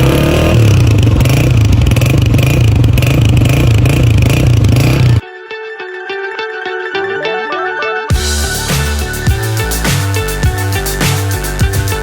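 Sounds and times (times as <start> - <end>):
motorcycle engine rumbling: 0.0 - 5.2.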